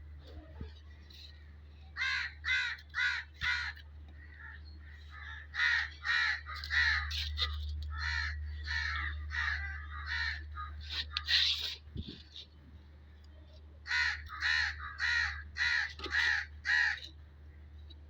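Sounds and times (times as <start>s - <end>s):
low hum: 0.0s - 18.0s
crows cawing: 2.0s - 11.4s, 13.8s - 17.2s.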